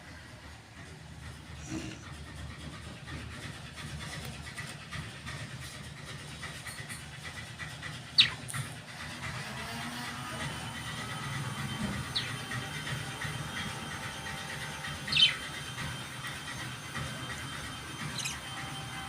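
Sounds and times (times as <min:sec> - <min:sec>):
parrot squawk: 0:08.2 - 0:08.4, 0:15.1 - 0:15.5.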